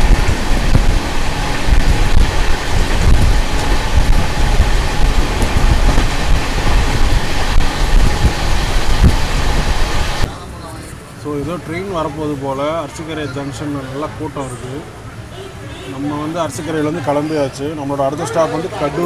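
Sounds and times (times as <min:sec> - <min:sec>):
rushing noise: 0:00.0 - 0:10.6
train wheels rumbling on rails: 0:00.0 - 0:12.4.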